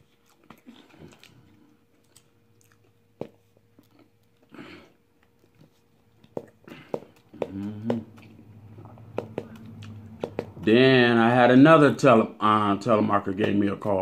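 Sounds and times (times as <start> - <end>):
chewing and mouth sounds: 0.0 - 10.6.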